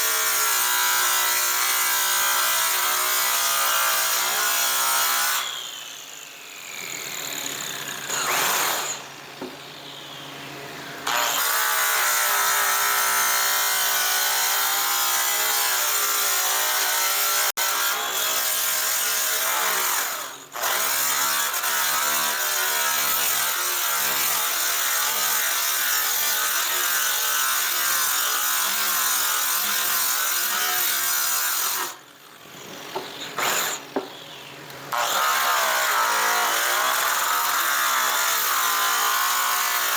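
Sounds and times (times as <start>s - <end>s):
electric polisher on metal: 10.8s - 32.0s, 35.0s - 39.9s.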